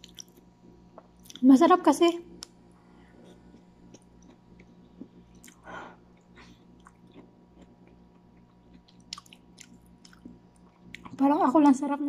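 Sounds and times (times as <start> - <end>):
chewing noodles: 3.2 - 11.2.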